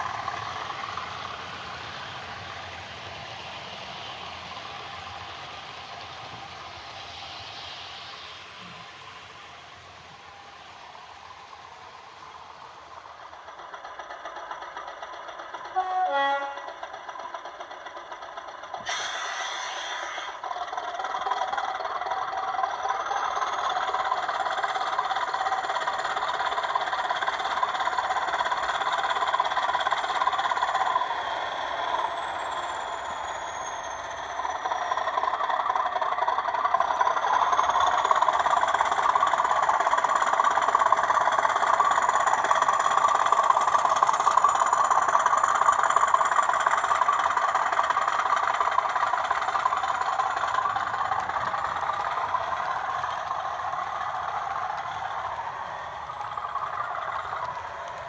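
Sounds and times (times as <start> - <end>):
diesel engine running: 0.0 - 58.0
thin gliding whines: 0.0 - 58.0
locomotive horn blast: 15.8 - 16.7
burst of hiss: 18.8 - 20.4.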